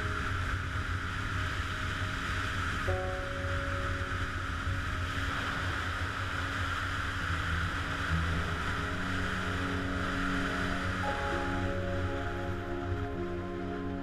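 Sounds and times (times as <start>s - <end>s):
faint background music: 0.0s - 14.0s
motorcycle engine drone: 0.0s - 14.0s
wind rushing: 0.0s - 14.0s.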